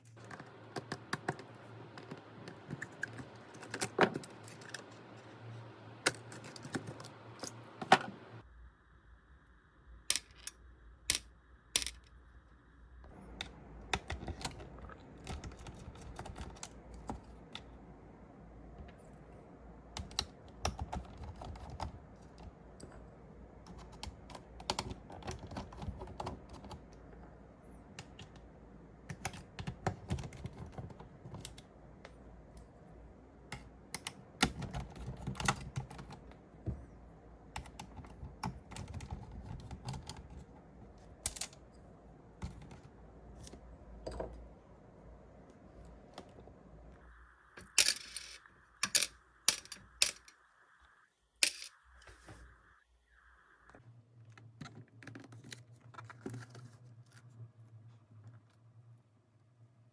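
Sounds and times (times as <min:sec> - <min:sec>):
tools and parts clicking: 0:10.1 - 0:12.2, 0:47.6 - 0:50.4, 0:51.4 - 0:51.8.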